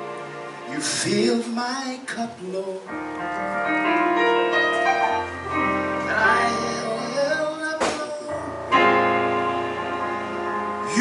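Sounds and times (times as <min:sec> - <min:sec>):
person singing a hymn: 0:00.7 - 0:03.1, 0:06.0 - 0:08.8
sustained keyboard chords: 0:02.9 - 0:11.0.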